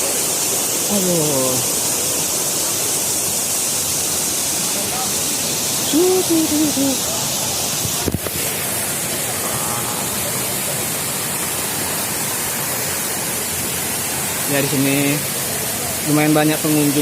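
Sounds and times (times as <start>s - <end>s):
waterfall rushing: 0.0s - 17.0s
person's voice: 0.9s - 1.7s, 5.8s - 7.3s.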